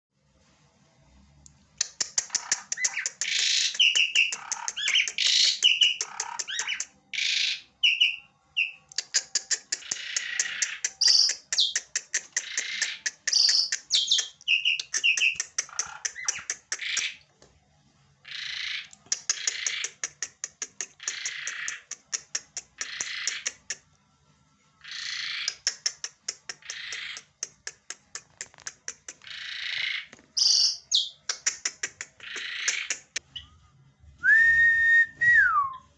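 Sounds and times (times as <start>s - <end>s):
starling calling: 2.2s - 17.2s, 18.2s - 20.2s, 29.2s - 33.2s.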